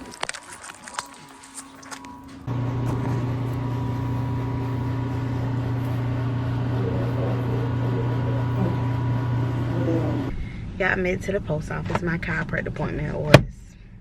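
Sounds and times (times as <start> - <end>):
car engine hum inside cabin: 2.0 - 13.5.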